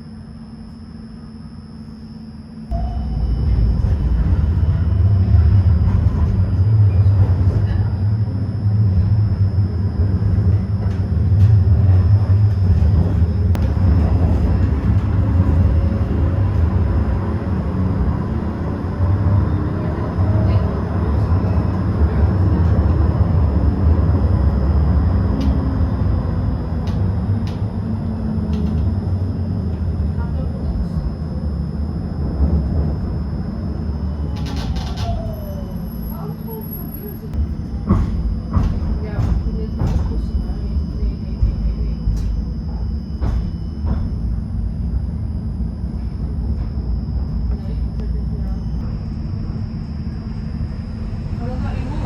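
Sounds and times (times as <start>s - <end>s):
faint high steady tones: 0.0s - 7.2s
tram rumbling on rails: 2.6s - 52.0s.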